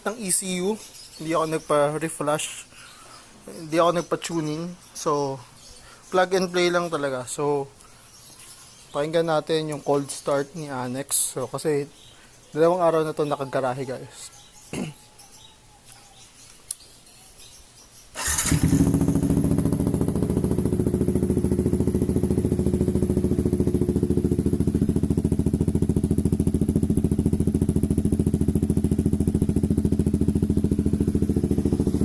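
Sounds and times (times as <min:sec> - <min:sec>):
motorcycle engine starting: 0:18.1 - 0:32.0
motorcycle engine idling: 0:18.2 - 0:32.0.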